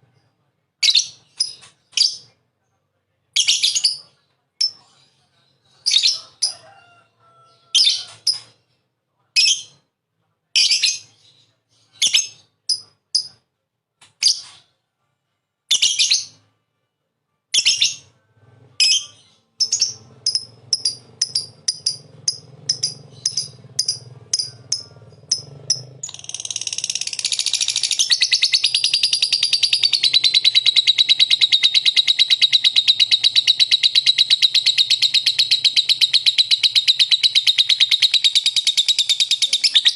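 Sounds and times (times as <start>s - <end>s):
lovebird chirping: 18.8s - 39.9s
bird rattling trill: 20.2s - 39.8s.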